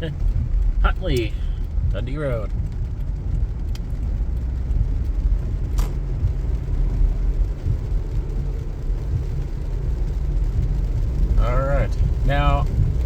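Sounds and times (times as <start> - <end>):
car road noise on wet road: 0.0 - 13.0.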